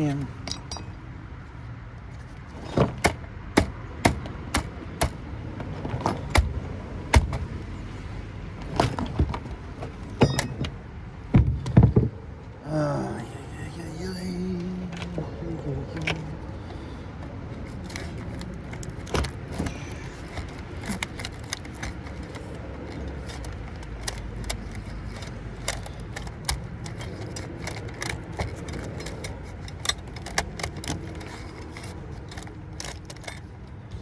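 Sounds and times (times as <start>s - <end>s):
metal tools clinking: 0.0s - 1.0s, 8.7s - 10.8s.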